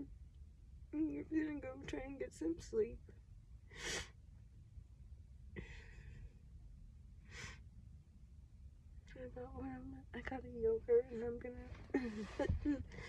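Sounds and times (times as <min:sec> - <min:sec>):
faint breath-like noise: 0:07.2 - 0:07.8.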